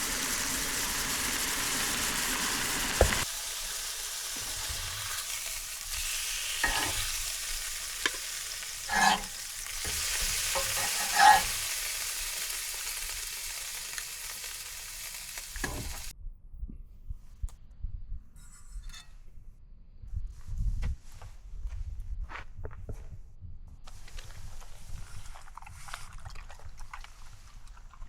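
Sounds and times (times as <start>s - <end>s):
food sizzling on griddle: 0.0s - 16.1s
utensil scraping griddle: 2.9s - 16.1s.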